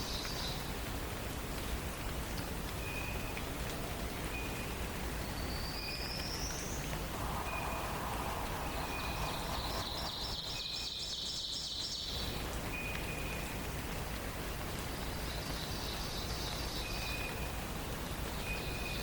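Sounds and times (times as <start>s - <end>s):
background hiss: 0.0s - 19.0s
rising bird whistle: 5.7s - 12.2s.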